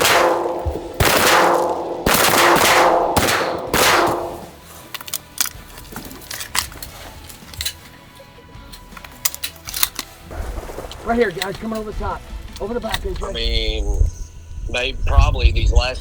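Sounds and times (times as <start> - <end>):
shotgun blasts: 0.0 - 4.6.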